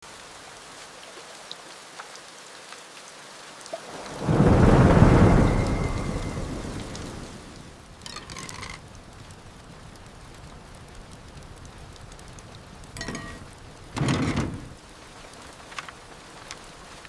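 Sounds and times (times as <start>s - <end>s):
heavy rain falling: 0.0s - 17.0s
thunder rumbling: 3.9s - 15.1s.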